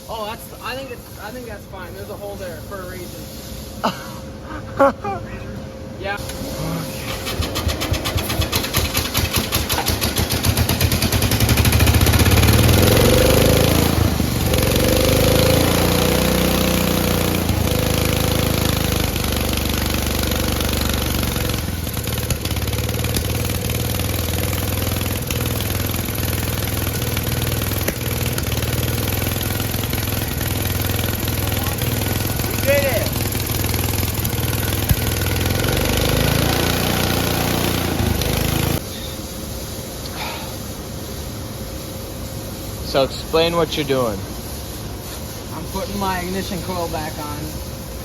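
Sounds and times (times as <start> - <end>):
lawn tractor engine running: 6.3 - 38.8.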